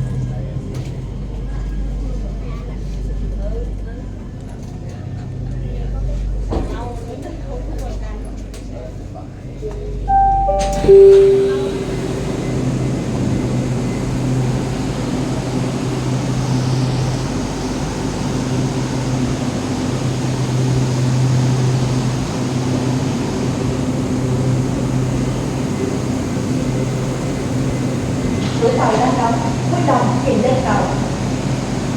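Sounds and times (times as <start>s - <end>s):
train equipment humming: 9.7s - 31.9s.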